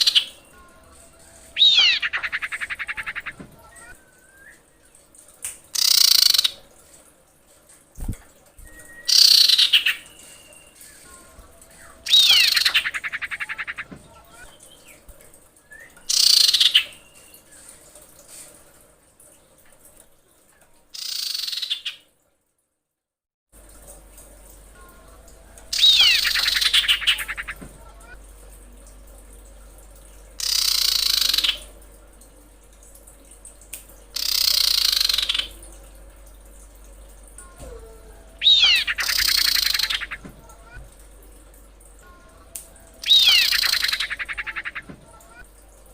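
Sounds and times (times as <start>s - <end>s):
bird whistle and rattle call: 0.0s - 4.8s, 5.7s - 6.6s, 8.6s - 15.0s, 15.6s - 17.7s, 21.0s - 22.0s, 25.7s - 27.6s, 30.4s - 31.7s, 34.2s - 35.6s, 38.4s - 40.3s, 43.0s - 45.4s
faint bird calls: 0.0s - 4.8s, 8.7s - 15.1s, 25.7s - 28.2s, 37.4s - 40.8s, 42.0s - 45.4s
rough bird call: 1.4s - 4.0s, 38.4s - 40.6s, 43.0s - 45.4s
bird giving harsh hissing rasps: 38.4s - 40.2s.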